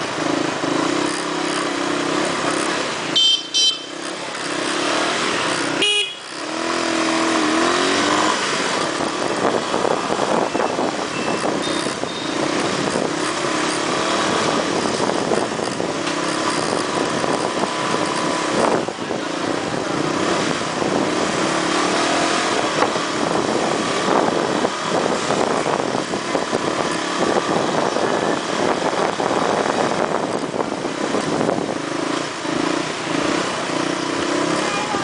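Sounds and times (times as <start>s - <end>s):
motorcycle engines running: 0.0s - 35.0s
horns honking: 3.0s - 4.2s, 5.4s - 7.7s, 10.3s - 12.6s.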